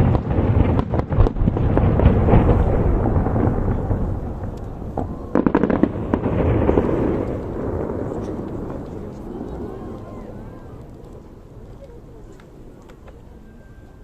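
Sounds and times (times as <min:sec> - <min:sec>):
sharp firework bangs: 0:00.0 - 0:11.5
fireworks booming: 0:00.0 - 0:14.0.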